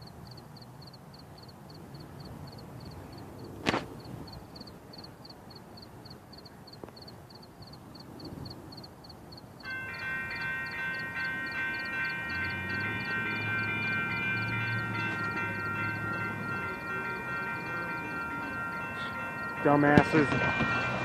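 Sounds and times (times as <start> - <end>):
railroad crossing bell ringing: 9.5 - 21.0.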